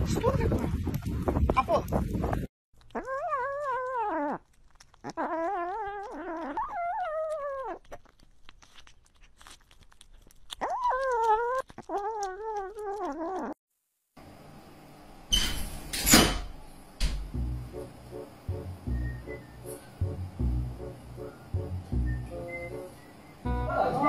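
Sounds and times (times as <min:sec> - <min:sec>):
kitten chewing wet food: 0:02.8 - 0:13.6.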